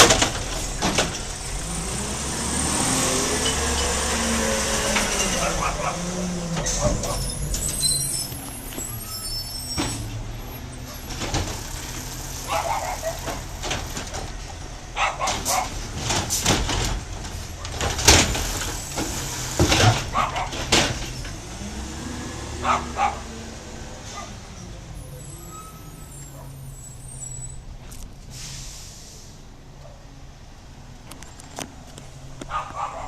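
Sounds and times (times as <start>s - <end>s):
sharp knocks and clanks: 0.0s - 1.9s, 15.1s - 21.4s
garbage truck engine running: 0.0s - 24.4s.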